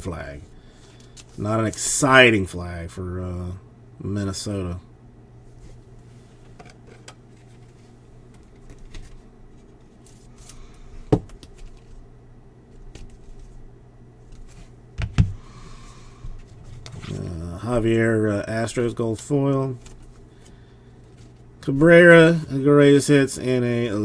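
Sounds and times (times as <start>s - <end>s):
low steady hum: 0.0s - 24.0s
cards rustling and clicking: 0.7s - 1.9s, 5.6s - 12.1s, 12.7s - 17.4s, 19.2s - 21.8s.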